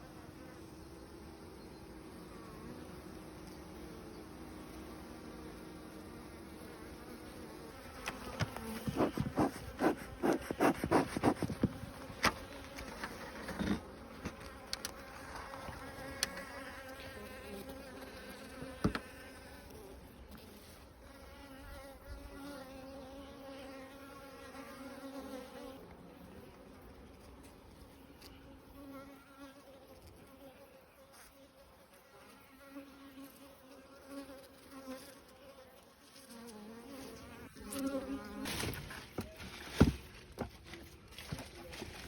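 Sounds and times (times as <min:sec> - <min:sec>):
bees buzzing: 0:00.1 - 0:20.1.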